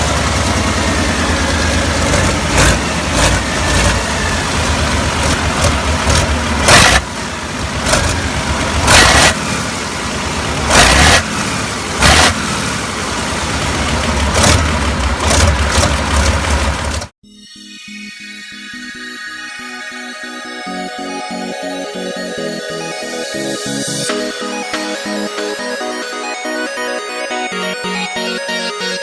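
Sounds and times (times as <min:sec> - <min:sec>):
diesel engine revving: 0:00.0 - 0:17.2.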